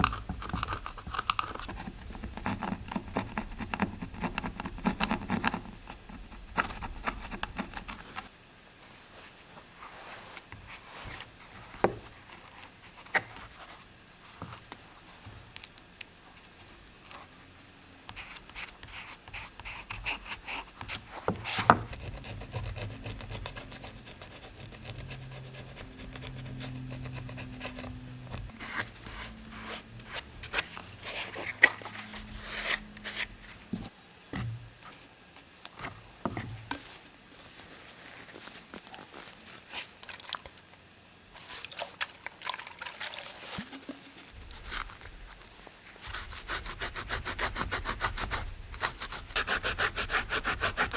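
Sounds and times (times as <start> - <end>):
hand rubbing a bicycle saddle: 44.4 - 50.9.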